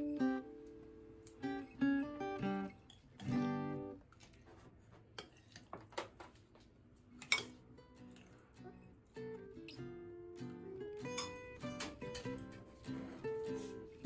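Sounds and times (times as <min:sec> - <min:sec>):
acoustic guitar plucked notes: 0:00.0 - 0:04.0, 0:07.6 - 0:14.0.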